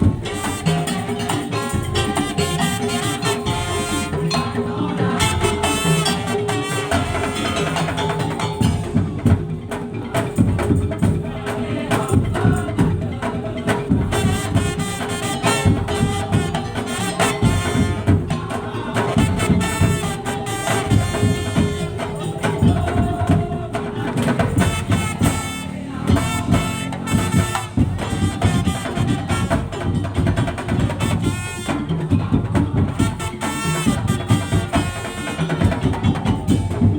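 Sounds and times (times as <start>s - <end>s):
pitched melody line: 0.0s - 10.0s
fast percussion ensemble: 0.0s - 36.9s.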